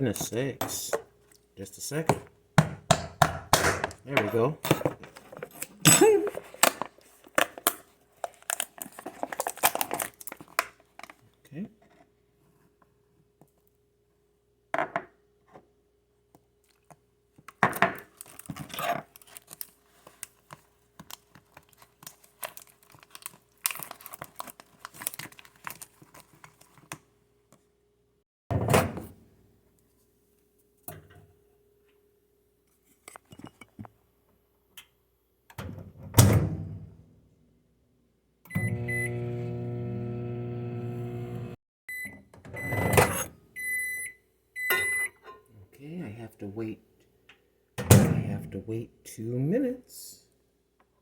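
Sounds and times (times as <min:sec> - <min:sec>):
microwave oven humming: 0:38.5 - 0:41.6.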